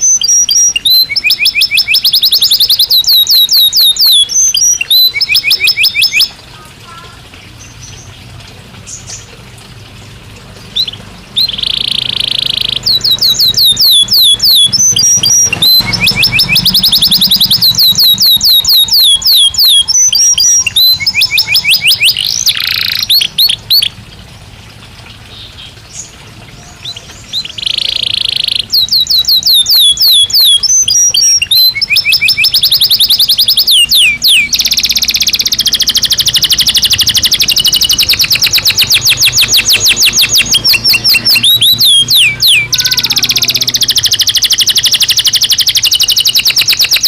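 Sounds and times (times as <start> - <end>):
canary singing: 0.0 - 8.2, 10.6 - 24.1, 25.3 - 47.0.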